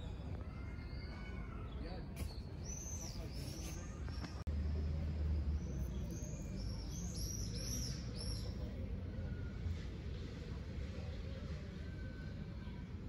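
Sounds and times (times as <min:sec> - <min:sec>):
small bird chirping: 0:05.7 - 0:08.7.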